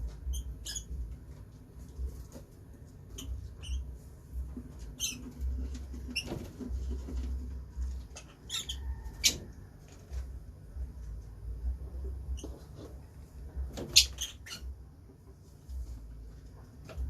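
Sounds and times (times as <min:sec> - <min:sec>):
lovebirds chirping: 0:08.0 - 0:09.5.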